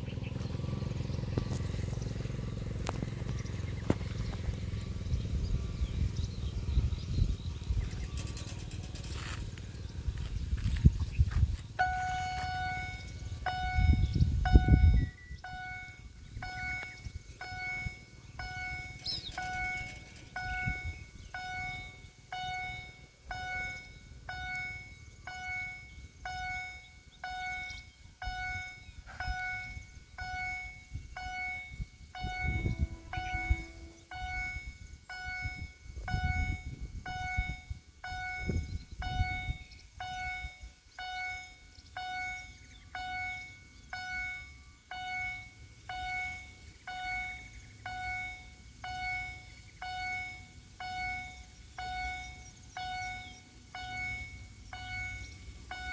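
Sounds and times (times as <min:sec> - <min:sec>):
low rumble: 0:00.0 - 0:22.2
level crossing warning bell: 0:11.7 - 0:55.9.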